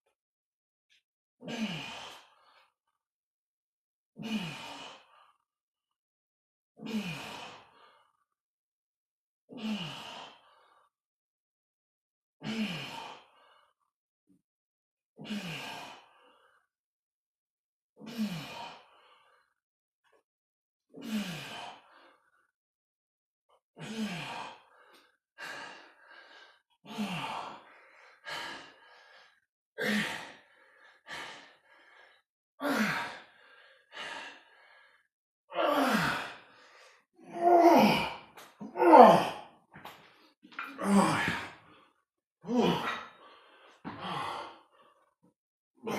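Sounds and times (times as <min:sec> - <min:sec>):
man exhaling with effort: 0:40.6 - 0:43.3.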